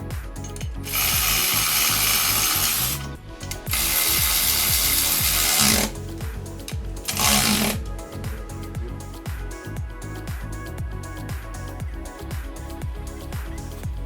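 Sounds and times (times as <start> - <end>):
background music with beat: 0.0 - 14.0
power tool high-pitched whir: 0.9 - 6.0, 7.0 - 7.8.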